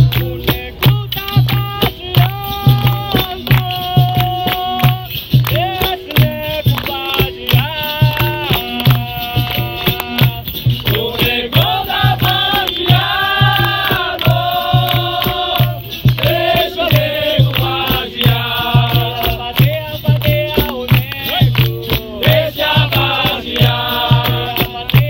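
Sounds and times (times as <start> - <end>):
percussion: 0.0 - 25.0
steady drum beat: 0.0 - 25.0
group singing: 1.8 - 25.0.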